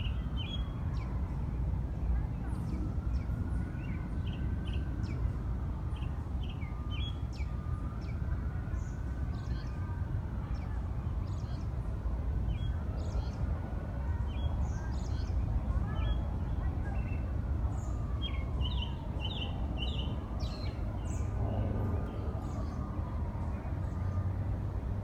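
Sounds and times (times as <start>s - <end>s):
low city rumble: 0.0s - 25.0s
distant siren wailing: 3.0s - 10.9s, 16.3s - 25.0s.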